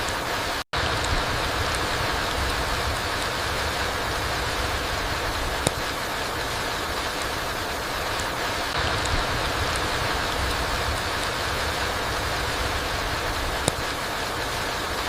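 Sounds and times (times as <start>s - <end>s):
rain falling through trees: 0.0s - 15.0s
sharp click: 5.6s - 5.9s, 13.6s - 13.9s.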